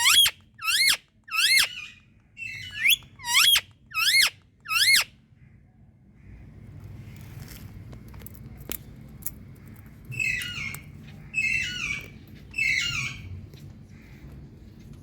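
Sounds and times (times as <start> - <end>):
parakeet calling loudly: 0.0 - 5.1.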